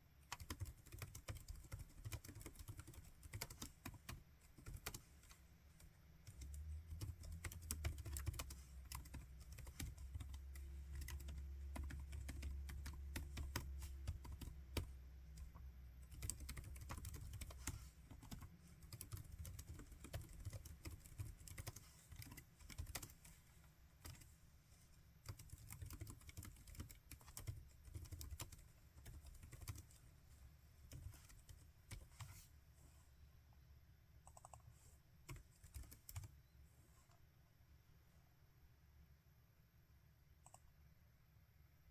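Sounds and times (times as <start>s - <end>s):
laptop keyboard typing: 0.2s - 23.4s, 24.0s - 24.3s, 25.2s - 30.0s, 30.9s - 32.4s, 34.2s - 34.7s, 35.3s - 36.4s, 40.4s - 40.7s.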